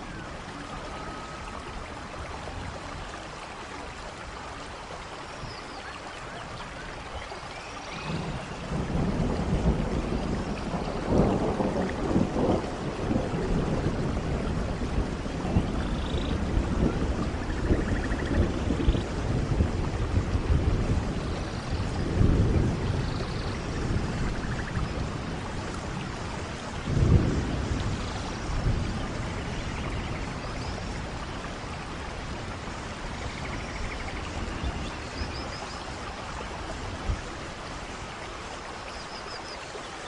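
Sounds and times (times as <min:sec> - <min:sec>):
steady rain falling: 0:00.0 - 0:40.0
low rolls of thunder: 0:07.9 - 0:38.2.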